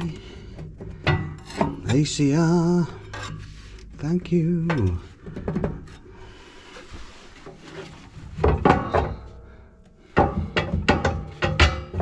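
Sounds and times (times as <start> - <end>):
clattering metal knocks: 0.0 - 3.4, 8.3 - 9.4, 10.0 - 12.0
scraping inside a stove: 0.0 - 9.4
soft rubbing: 6.5 - 8.4.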